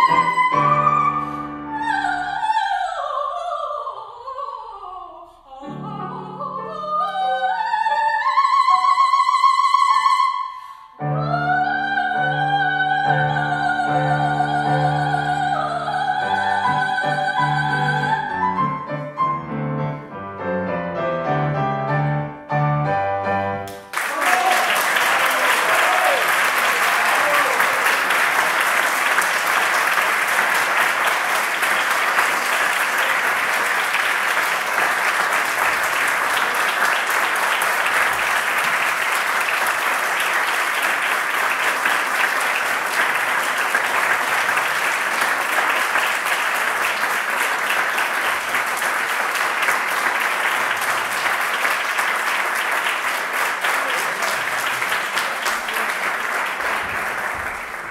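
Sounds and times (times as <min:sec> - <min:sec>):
audience applauding: 0:23.7 - 0:57.9.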